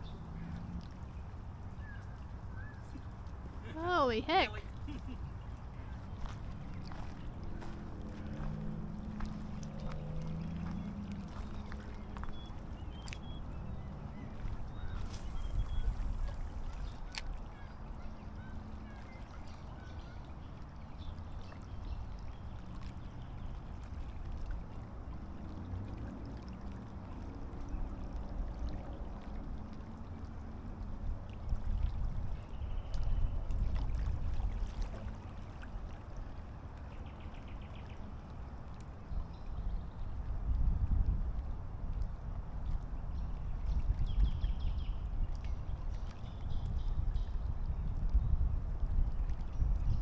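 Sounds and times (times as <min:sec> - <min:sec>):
wind buffeting microphone: 0:00.0 - 0:17.6, 0:31.0 - 0:36.5, 0:39.2 - 0:50.0
faint high chirps: 0:14.6 - 0:17.0.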